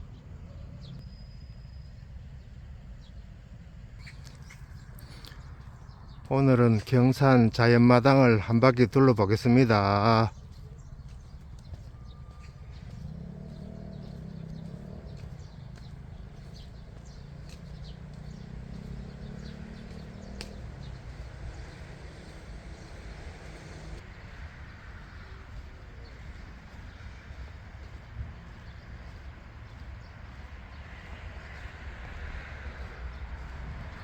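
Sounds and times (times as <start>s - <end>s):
bird chirps: 0.1s - 3.3s, 4.0s - 24.4s.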